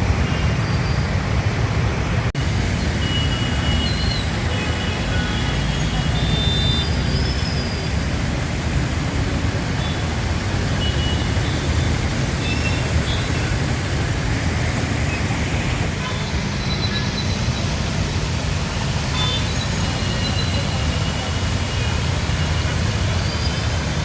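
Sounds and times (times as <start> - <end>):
vehicles driving through flooded street: 0.0 - 24.0.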